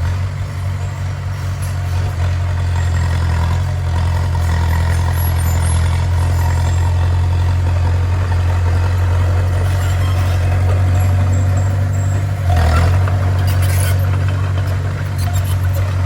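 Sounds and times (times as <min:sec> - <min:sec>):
bulldozer diesel engine droning: 0:00.0 - 0:16.0.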